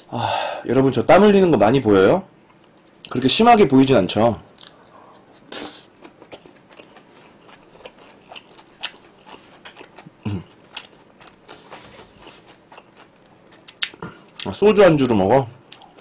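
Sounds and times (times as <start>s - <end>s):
wet chewing clicks and smacks: 4.6s - 11.5s, 12.2s - 14.5s
person humming: 10.2s - 10.5s.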